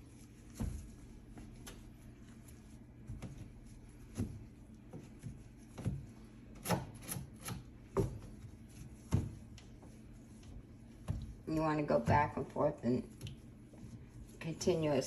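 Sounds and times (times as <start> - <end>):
rag scrubbing a surface: 7.2 - 15.0.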